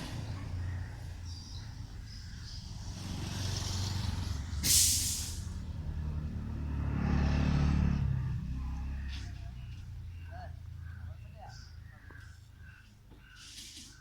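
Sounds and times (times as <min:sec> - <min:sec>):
diesel truck engine running: 0:00.0 - 0:12.2
air brake hiss: 0:04.6 - 0:05.6, 0:13.4 - 0:13.9.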